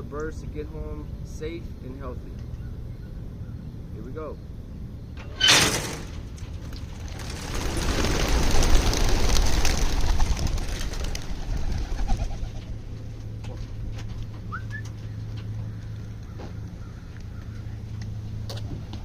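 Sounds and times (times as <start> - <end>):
pigeon wingbeats: 6.6 - 12.8.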